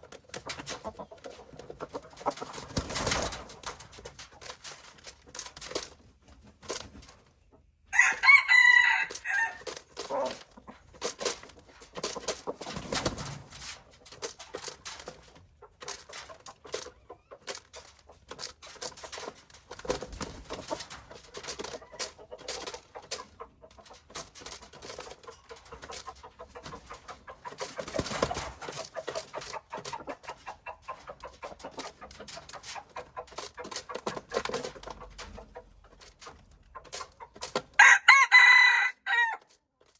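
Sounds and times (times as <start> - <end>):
chickens clucking softly: 0.0 - 4.6, 5.2 - 37.8
rooster crowing: 7.9 - 9.6, 37.8 - 39.4.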